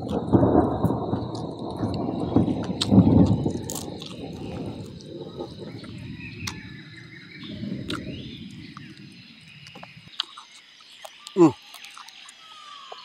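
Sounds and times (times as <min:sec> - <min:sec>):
faint birds chirping: 0:00.0 - 0:13.0
person chewing: 0:02.8 - 0:04.2, 0:09.6 - 0:13.0.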